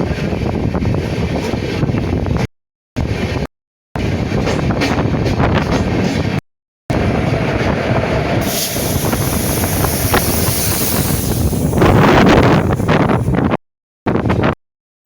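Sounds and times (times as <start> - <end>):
wind on microphone: 0.0 - 14.6
train wheels knocking on rail joints: 4.4 - 6.4
train rumble and hiss: 6.9 - 13.3.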